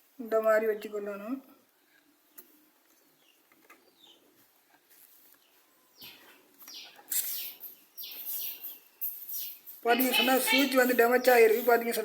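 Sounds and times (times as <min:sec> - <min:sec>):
birds chirping: 0:01.8 - 0:04.4, 0:05.4 - 0:12.0
high-pitched falling bird calls: 0:05.4 - 0:12.0.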